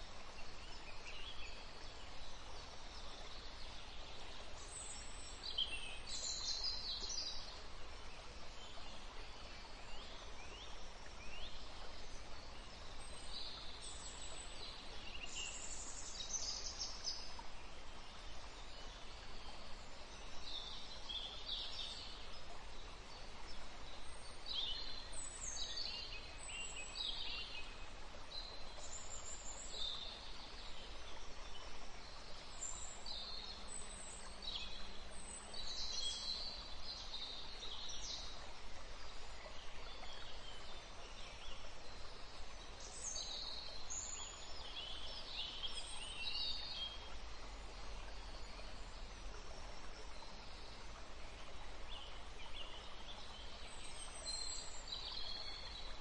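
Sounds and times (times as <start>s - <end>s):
low background hiss: 0.0s - 56.0s.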